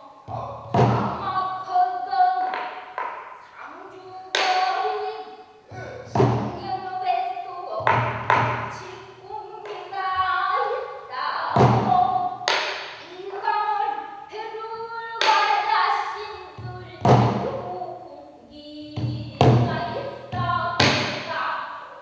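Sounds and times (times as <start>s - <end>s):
barrel drum strikes: 0.3s - 1.4s, 5.8s - 6.8s, 7.8s - 9.0s, 11.5s - 13.0s, 16.6s - 17.7s.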